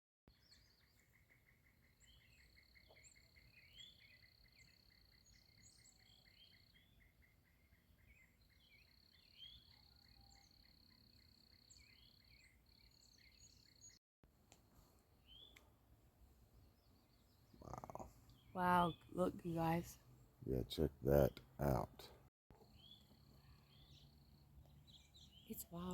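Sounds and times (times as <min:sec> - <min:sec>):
birds chirping: 0:16.3 - 0:25.9.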